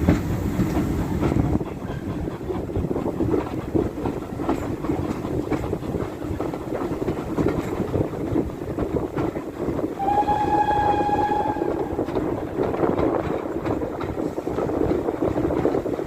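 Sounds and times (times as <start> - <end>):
train wheels clattering on rails: 0.0 - 16.0
locomotive warning horn: 10.0 - 12.1.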